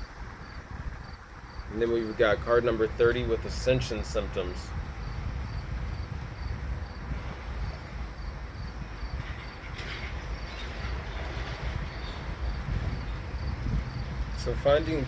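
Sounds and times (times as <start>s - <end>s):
insect chirping: 0.0s - 2.3s, 4.4s - 15.0s
wind buffeting microphone: 0.0s - 15.0s.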